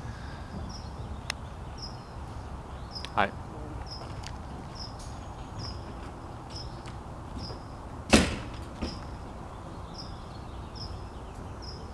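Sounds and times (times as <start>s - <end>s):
loud sharp bang: 8.1s - 9.0s.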